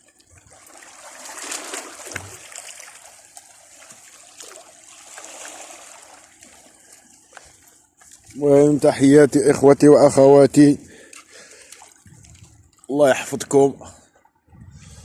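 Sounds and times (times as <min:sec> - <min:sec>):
sea water washing and trickling: 0:00.0 - 0:08.9, 0:10.9 - 0:13.4.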